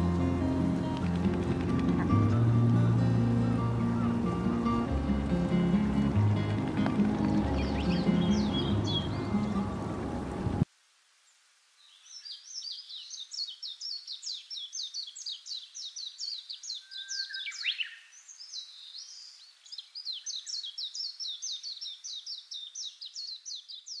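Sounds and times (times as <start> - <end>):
bird chirping rapidly: 3.8 - 10.6.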